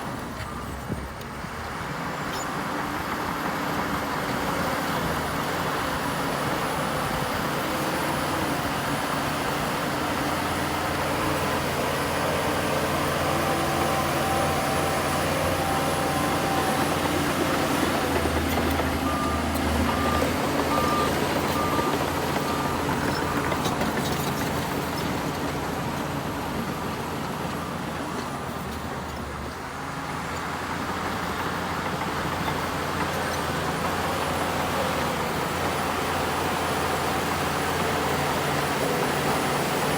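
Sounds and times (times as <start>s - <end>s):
heavy diesel machinery running: 0.0s - 39.9s
reversing alarm beeps: 12.9s - 23.6s.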